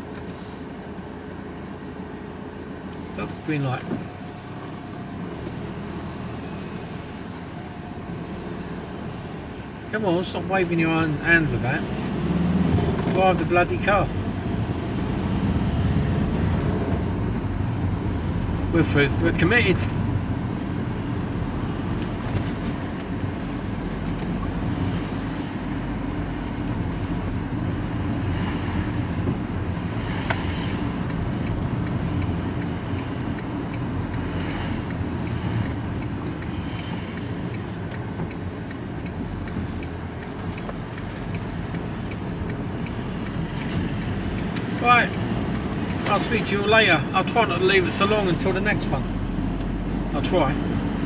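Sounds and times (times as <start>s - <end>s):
vehicle engine and road noise: 0.0s - 51.0s
faint regular ticks: 30.3s - 46.0s.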